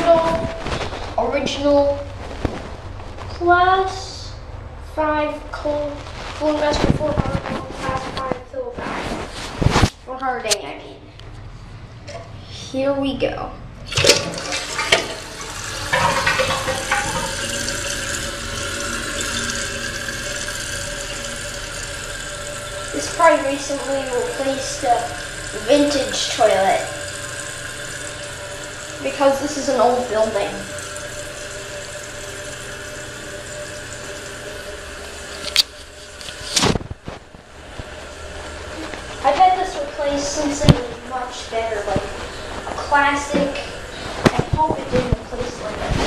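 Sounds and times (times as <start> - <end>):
faint steady whine: 0.0 - 46.0
fill valve hissing: 13.8 - 36.8, 37.4 - 44.3
toilet flushing: 13.8 - 46.0.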